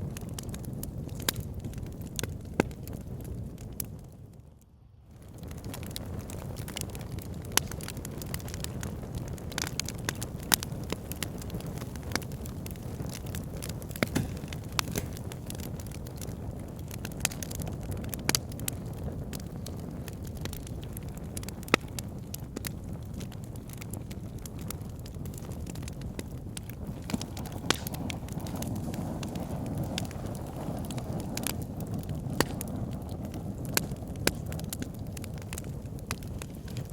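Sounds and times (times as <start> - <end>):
wood crackling and popping: 0.0 - 4.5, 5.1 - 36.9
fire rumbling: 0.0 - 36.9.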